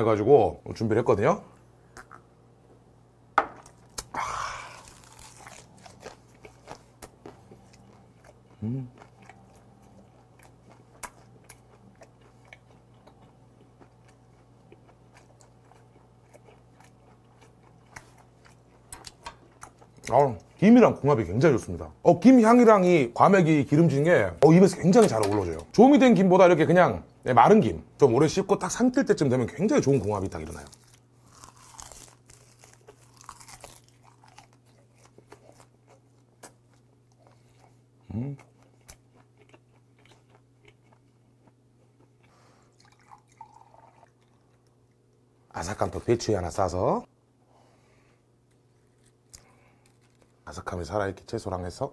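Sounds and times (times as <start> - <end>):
low steady hum: 0.0 - 51.9
person chewing with crunches: 3.6 - 20.6, 29.8 - 45.2, 48.4 - 50.7.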